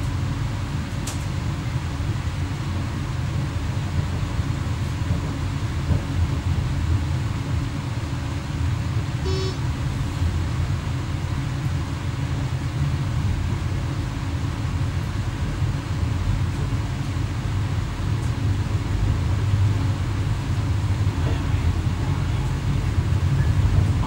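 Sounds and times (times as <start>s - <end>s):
electric train rumble: 0.0s - 24.0s
short pitched tone: 9.2s - 9.7s.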